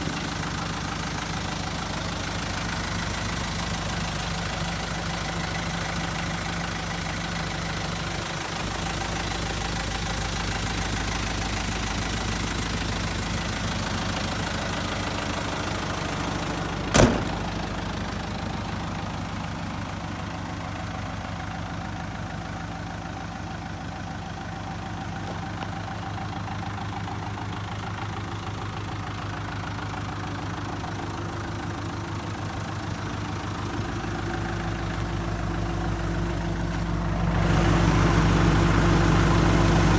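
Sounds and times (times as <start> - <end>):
diesel engine idling: 0.0 - 39.9
sharp knock: 17.0 - 17.4.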